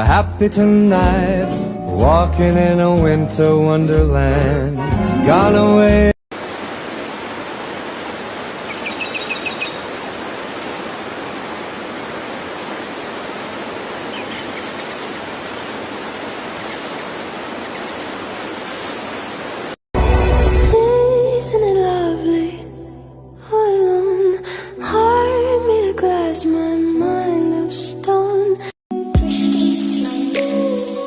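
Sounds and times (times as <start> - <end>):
rushing flowing water: 6.3 - 20.7
bird chirping: 8.6 - 10.9, 14.0 - 15.8, 16.4 - 19.4.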